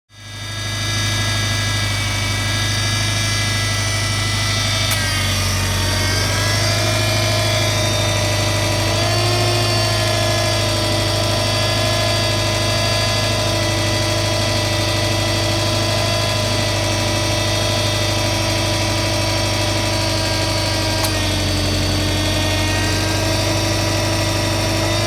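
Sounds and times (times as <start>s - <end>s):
power steering pump whining: 0.2s - 25.0s
car engine idling: 1.4s - 25.0s
single click: 4.8s - 5.2s.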